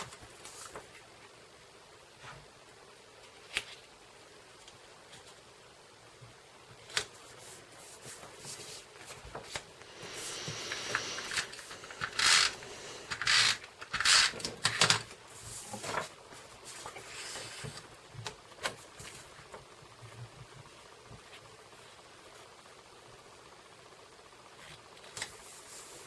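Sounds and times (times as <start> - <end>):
paper rustling: 0.0 - 1.2, 6.7 - 20.2.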